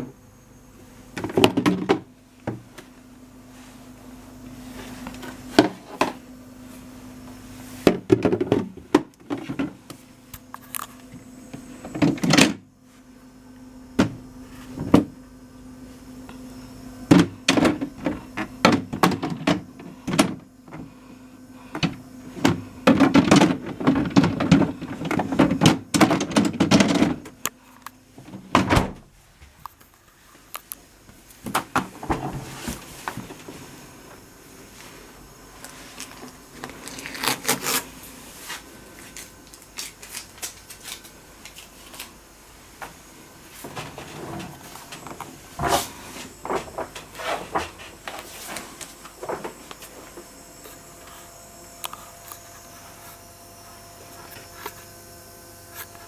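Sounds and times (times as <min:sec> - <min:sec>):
refrigerator low hum: 0:00.0 - 0:56.0
refrigerator doors and drawers thunking: 0:11.9 - 0:12.7, 0:17.1 - 0:20.9, 0:21.8 - 0:27.4, 0:28.2 - 0:29.2, 0:31.5 - 0:33.6, 0:43.6 - 0:48.6.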